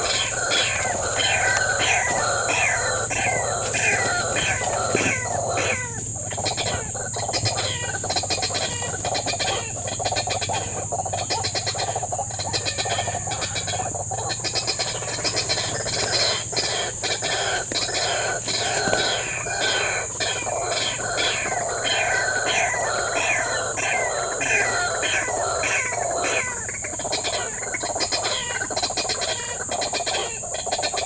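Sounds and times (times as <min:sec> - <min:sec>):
insects humming: 0:00.0 - 0:31.0
waterhen harsh clucking calls: 0:00.0 - 0:31.0.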